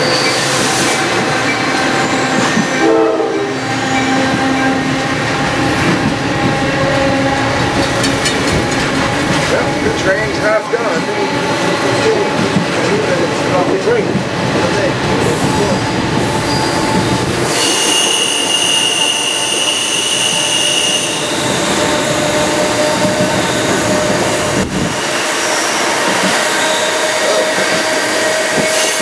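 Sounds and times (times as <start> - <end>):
train rolling along track: 0.0 - 29.0
high-pitched wheel squeal: 16.4 - 24.2.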